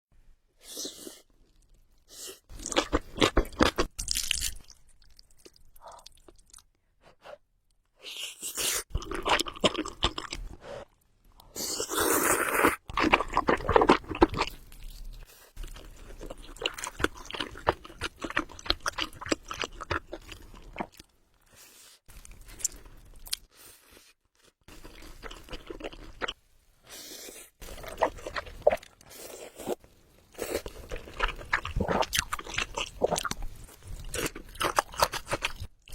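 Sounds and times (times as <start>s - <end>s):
wet chewing with crunching: 11.8s - 21.1s, 22.1s - 26.4s, 27.2s - 35.9s.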